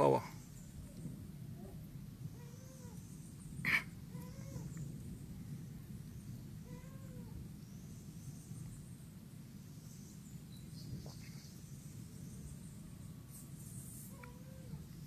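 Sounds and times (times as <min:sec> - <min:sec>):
faint low rumble: 0:00.0 - 0:15.0
small birds chirping: 0:00.0 - 0:15.0.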